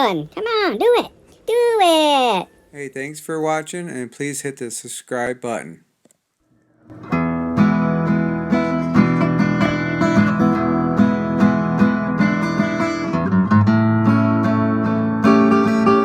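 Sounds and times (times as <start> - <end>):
strummed acoustic guitar: 6.9 - 16.0.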